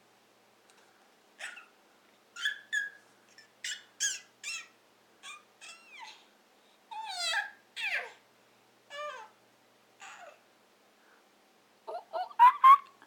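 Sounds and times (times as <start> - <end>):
toddler squealing monkey sounds: 1.4 - 1.7, 2.4 - 6.3, 6.9 - 8.2.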